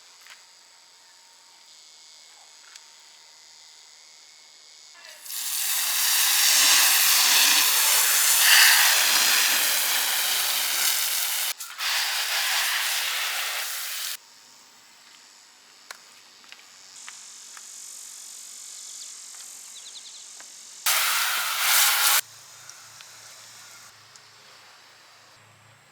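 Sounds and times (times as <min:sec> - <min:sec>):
faint hiss: 0:05.0 - 0:14.2, 0:20.8 - 0:25.3
water spraying: 0:05.1 - 0:14.2, 0:20.9 - 0:22.2.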